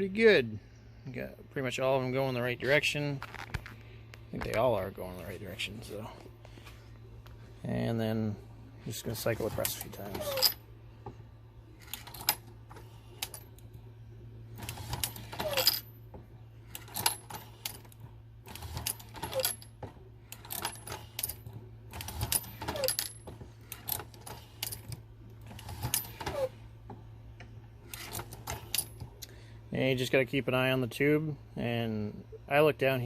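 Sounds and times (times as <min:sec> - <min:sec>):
low hum: 0:00.0 - 0:22.5
brass cases clinking: 0:09.6 - 0:10.7.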